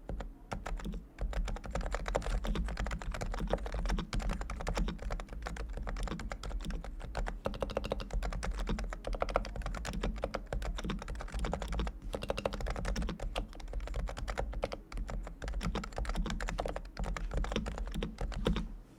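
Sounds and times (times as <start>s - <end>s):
fast keyboard typing: 0.0s - 18.7s.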